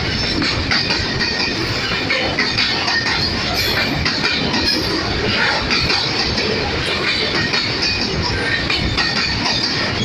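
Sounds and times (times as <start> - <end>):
freight train rumbling past: 0.0 - 10.0
track clacks: 0.0 - 10.0.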